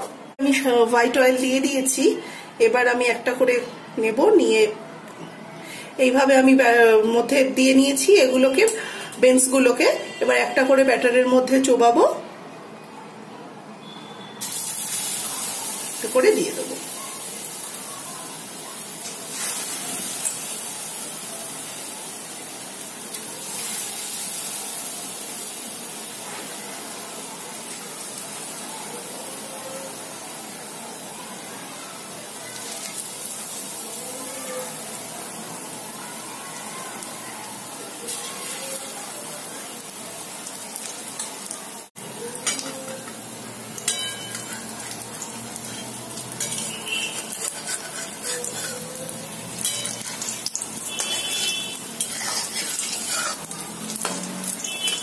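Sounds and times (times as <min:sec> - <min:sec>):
food frying in hot oil: 0:14.4 - 0:55.0
metal spatula scraping a pan: 0:19.0 - 0:20.6, 0:42.4 - 0:55.0.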